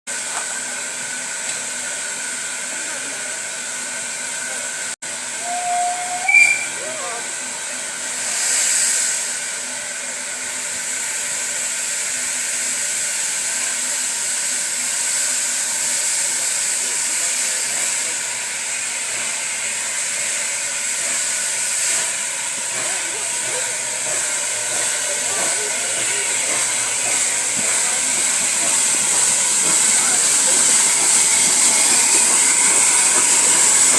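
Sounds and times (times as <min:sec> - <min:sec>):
steam locomotive hissing: 0:00.1 - 0:33.9
train whistle: 0:05.4 - 0:07.2.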